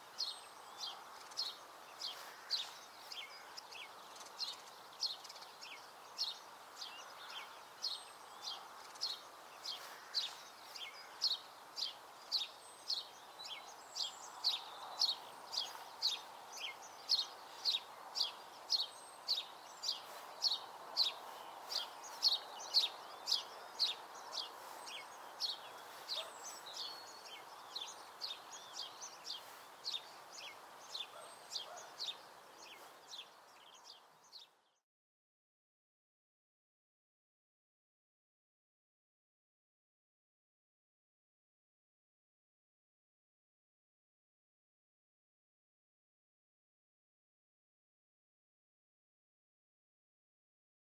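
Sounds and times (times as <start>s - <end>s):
soft outdoor hiss: 0.0s - 34.8s
songbird high chirp: 0.0s - 34.8s.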